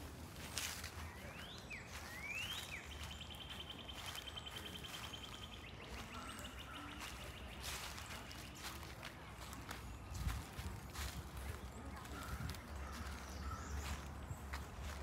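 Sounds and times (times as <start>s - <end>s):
songbird whistles and trill: 1.2s - 6.6s.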